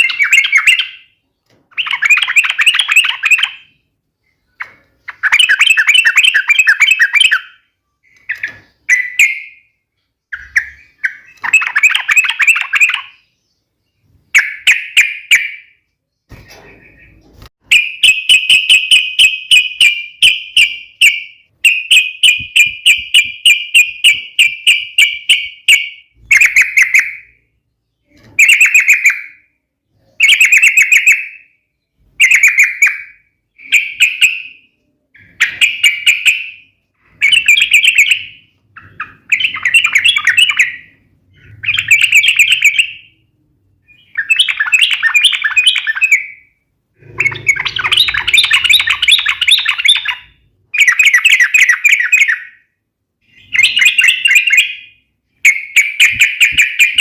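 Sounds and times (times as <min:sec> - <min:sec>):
bird calling in sharp rapid notes: 0:16.7 - 0:27.4, 0:44.0 - 0:52.6.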